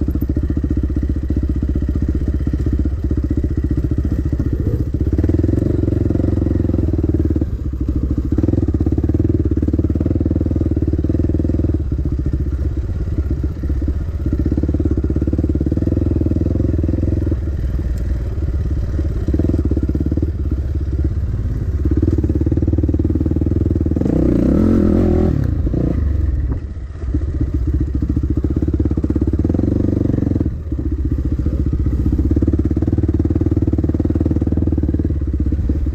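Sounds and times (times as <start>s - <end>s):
dirt bike engine revving: 0.0s - 12.9s, 21.8s - 26.2s.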